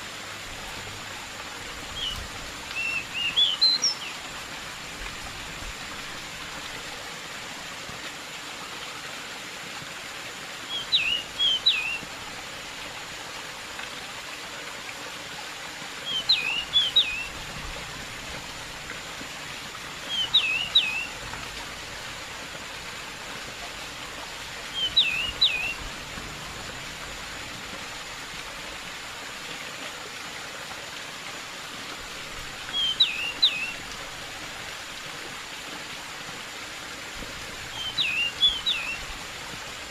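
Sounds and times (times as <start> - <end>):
running water hiss: 0.0 - 39.9
bird singing high notes: 20.1 - 21.1, 24.7 - 25.8, 37.8 - 39.0.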